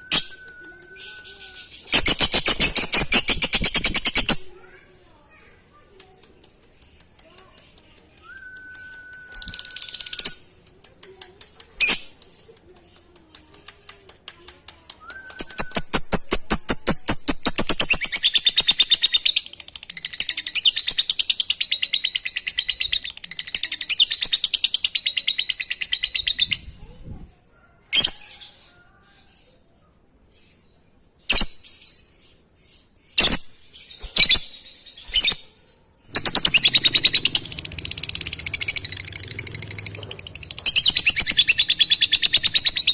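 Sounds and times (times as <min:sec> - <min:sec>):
whistle-like tone: 0:00.0 - 0:01.2
bird chattering trill: 0:36.1 - 0:42.9
clicks: 0:36.1 - 0:42.9.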